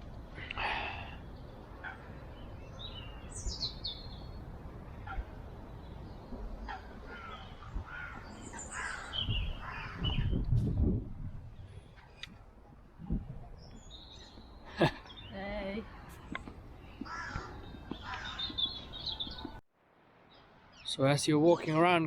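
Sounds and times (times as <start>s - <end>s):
birds twittering: 0.4s - 10.5s, 13.4s - 19.6s
high falling bird chirps: 1.2s - 10.9s, 13.6s - 19.6s.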